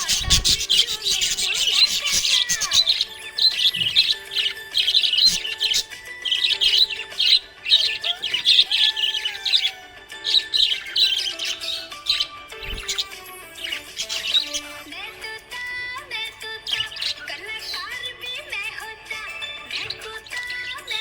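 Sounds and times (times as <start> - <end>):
background music with held notes: 0.0 - 21.0
parrots chirping and twittering: 0.0 - 21.0.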